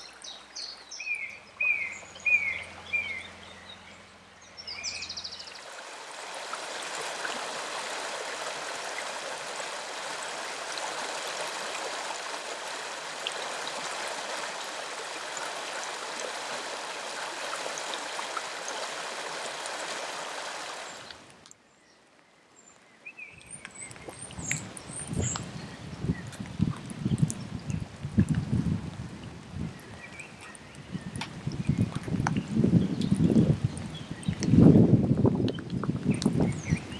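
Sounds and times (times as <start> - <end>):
river water rushing: 0.0 - 21.3
quiet outdoor background: 0.0 - 27.1.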